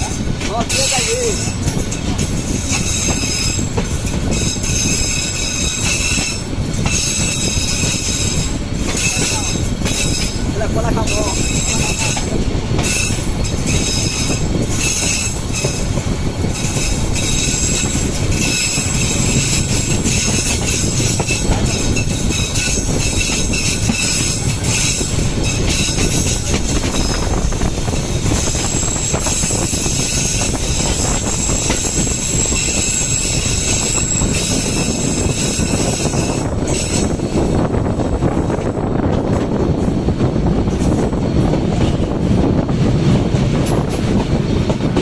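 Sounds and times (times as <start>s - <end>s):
train coaches rumbling: 0.0s - 45.0s.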